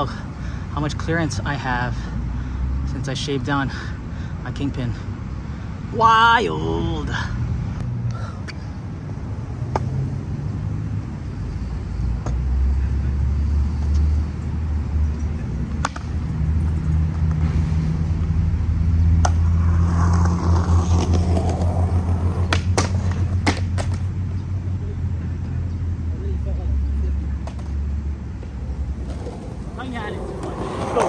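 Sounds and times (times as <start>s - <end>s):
skateboard wheels rolling on concrete: 8.4s - 26.4s, 27.1s - 31.0s
skateboard clacks: 19.2s - 24.2s, 27.4s - 27.8s, 28.4s - 31.0s.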